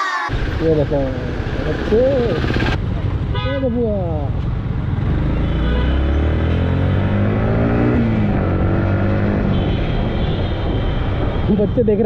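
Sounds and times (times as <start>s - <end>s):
motorcycle engine accelerating: 4.0s - 9.6s.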